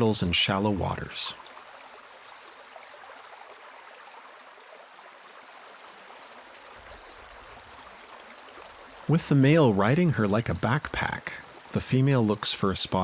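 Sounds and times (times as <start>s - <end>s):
rocky stream running: 0.0s - 13.0s
insect chirping: 1.7s - 4.4s, 5.0s - 11.7s.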